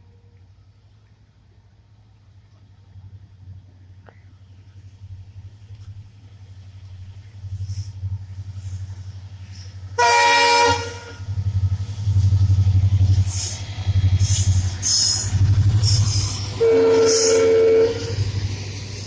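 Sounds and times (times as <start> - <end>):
train rumble: 0.0 - 19.0
train horn: 10.0 - 11.3, 16.6 - 18.4.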